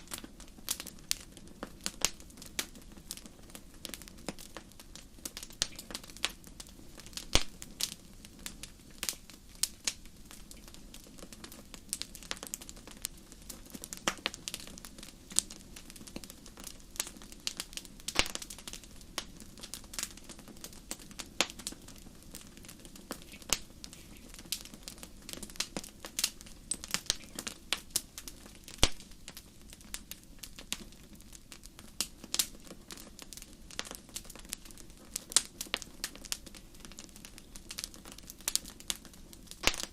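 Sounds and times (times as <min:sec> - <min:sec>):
low steady hiss: 0:00.0 - 0:39.9
wood fire crackling: 0:00.0 - 0:39.9.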